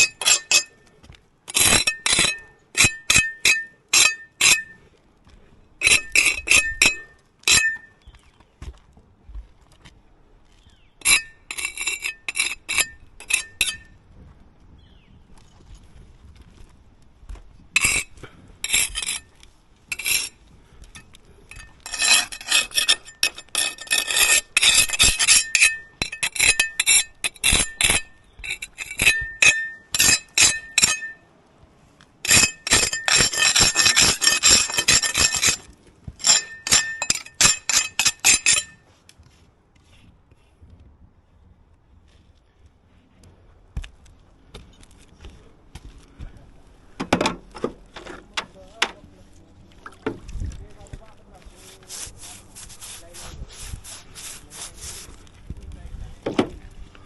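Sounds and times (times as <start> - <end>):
hard tool scraping hard surface: 0.0 - 0.8, 1.5 - 4.8, 5.8 - 7.9, 11.0 - 13.9, 17.8 - 31.2, 32.2 - 38.8, 50.4 - 55.4.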